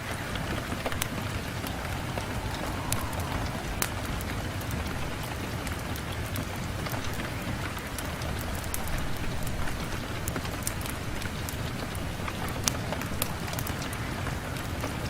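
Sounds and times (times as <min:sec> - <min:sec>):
rain on a window: 0:00.0 - 0:15.0
low rumble: 0:00.8 - 0:06.0.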